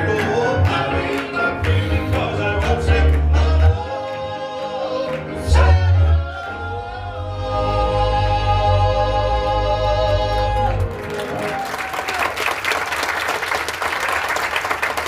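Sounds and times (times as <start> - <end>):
male quartet singing in harmony: 0.0 - 11.1
band accompaniment with bass: 0.0 - 11.9.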